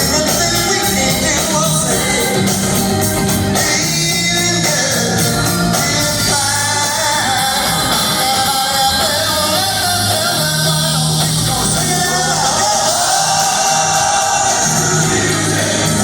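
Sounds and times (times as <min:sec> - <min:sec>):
live rock band playing: 0:00.0 - 0:16.0
vocals singing long notes: 0:03.5 - 0:16.0.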